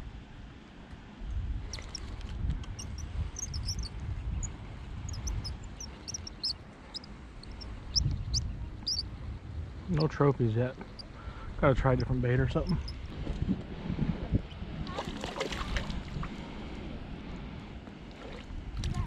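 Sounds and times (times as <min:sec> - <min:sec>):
small birds chirping: 0:01.7 - 0:09.1, 0:09.9 - 0:13.1.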